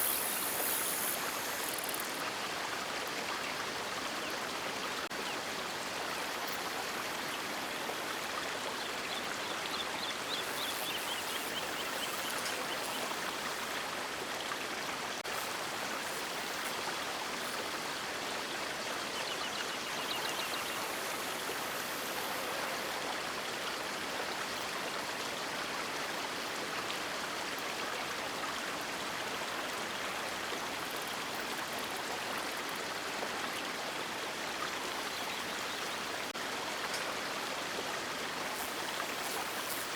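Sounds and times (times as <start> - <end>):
river water rushing: 9.3 - 23.7, 35.9 - 39.9.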